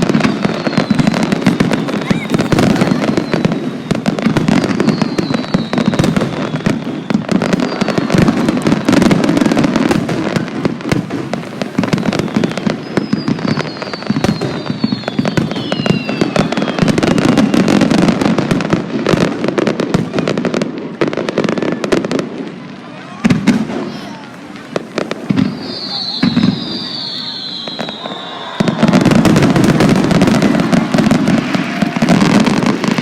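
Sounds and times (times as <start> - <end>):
fireworks bangs and crackles: 0.0 - 33.0
high falling whistles: 0.2 - 8.1, 11.8 - 17.8, 25.3 - 33.0.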